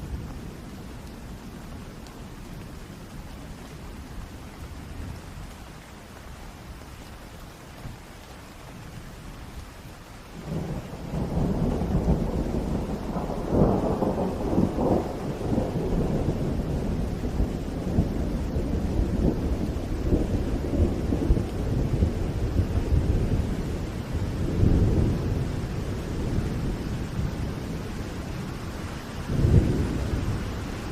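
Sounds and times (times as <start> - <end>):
steady rain: 0.0 - 30.9
thunder rumbling: 10.4 - 30.9.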